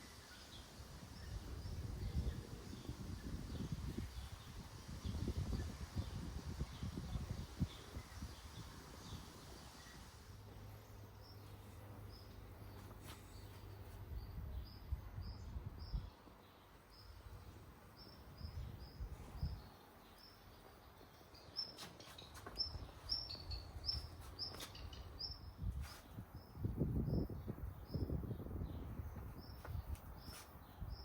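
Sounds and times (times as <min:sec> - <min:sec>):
small bird chirping: 0:10.9 - 0:31.0.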